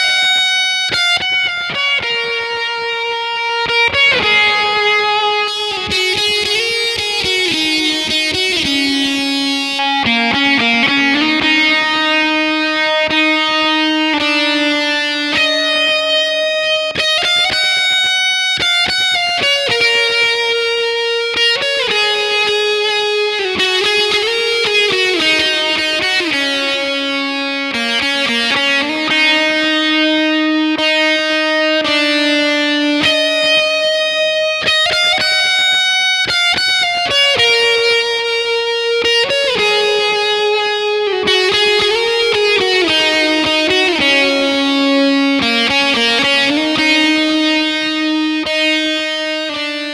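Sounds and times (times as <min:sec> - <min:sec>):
fuzz electric guitar solo: 0:00.0 - 0:49.9.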